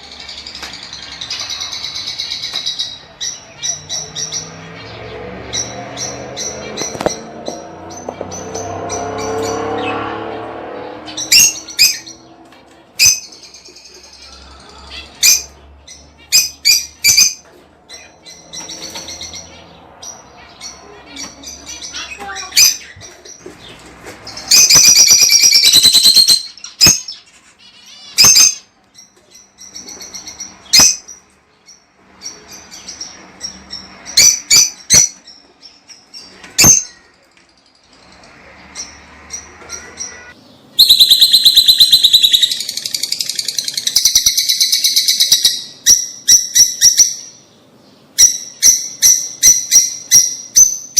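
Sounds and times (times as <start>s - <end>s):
birds shrill chattering: 0.0s - 50.9s
bird chirps: 10.8s - 50.9s.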